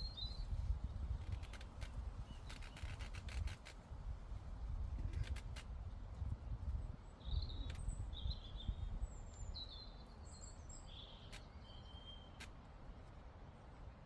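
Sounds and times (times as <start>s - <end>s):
wind rumble on microphone: 0.0s - 9.8s.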